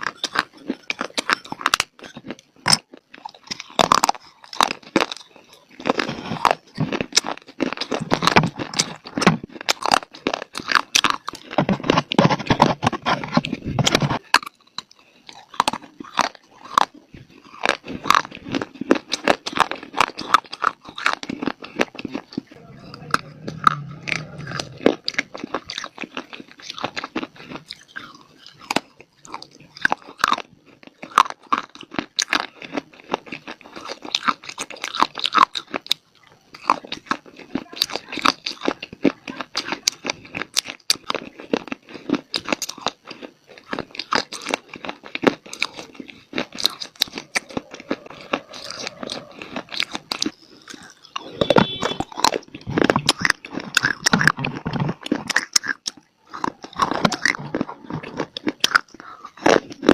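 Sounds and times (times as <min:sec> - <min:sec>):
person chewing dry clay: 0:00.0 - 0:59.9.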